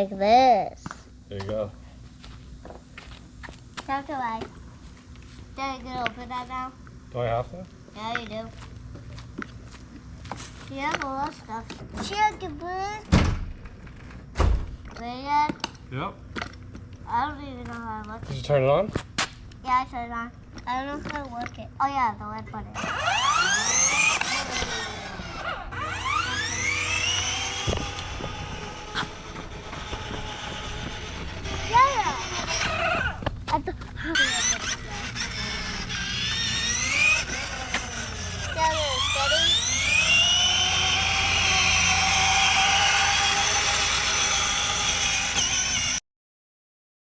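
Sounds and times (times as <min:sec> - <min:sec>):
electric ride-on motorbike whining: 0:20.6 - 0:46.0.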